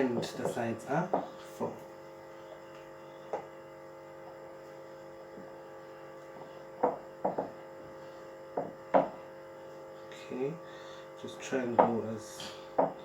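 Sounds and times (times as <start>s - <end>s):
electrical hum: 0.0s - 13.0s
soft knocks of pastry pressing: 6.3s - 7.6s, 8.5s - 9.2s, 12.8s - 13.0s.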